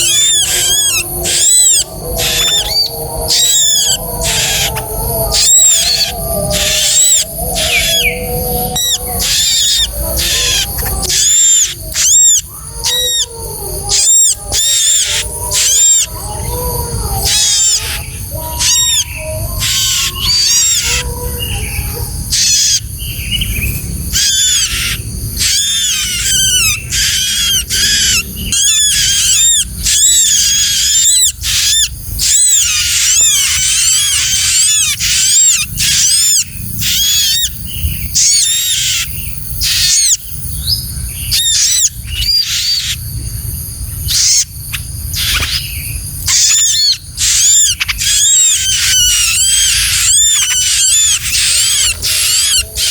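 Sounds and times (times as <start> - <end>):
bird rapid high chirps: 0.0 - 13.3, 24.2 - 43.1, 44.0 - 52.9.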